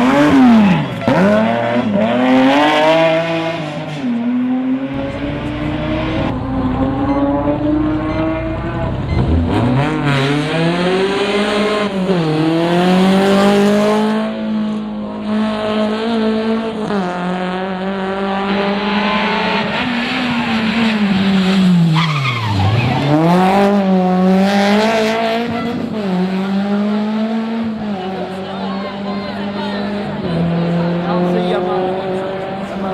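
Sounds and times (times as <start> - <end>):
car engine revving hard: 0.0 - 32.9.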